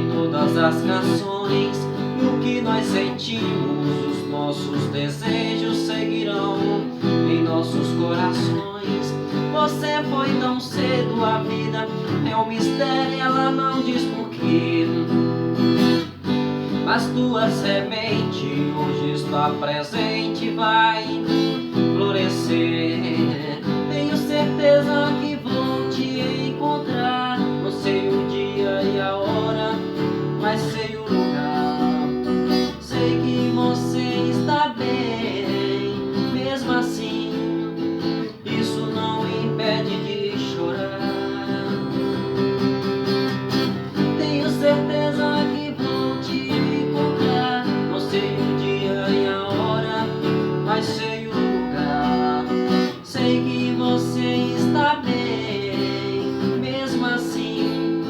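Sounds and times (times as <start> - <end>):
acoustic guitar strumming chords: 0.0 - 58.0.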